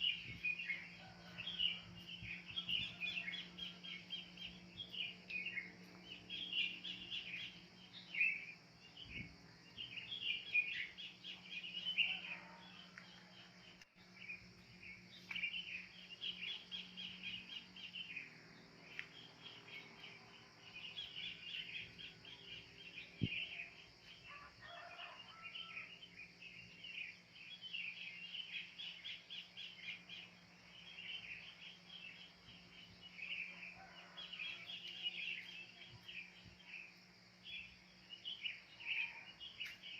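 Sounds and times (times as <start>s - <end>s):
birds chirping: 0.0s - 25.8s
lower longer bird calls: 14.8s - 39.9s.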